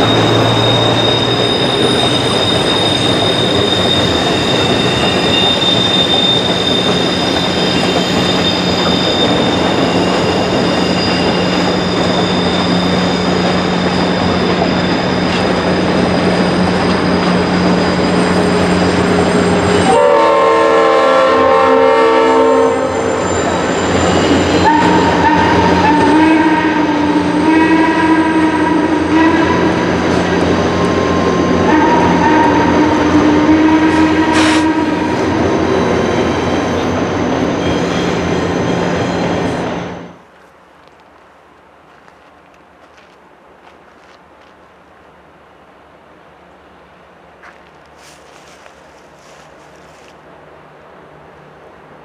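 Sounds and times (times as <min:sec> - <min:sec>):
steam locomotive whistle: 0:00.0 - 0:37.0
high wheel squeal: 0:00.0 - 0:40.2
train rolling noise: 0:00.0 - 0:52.0.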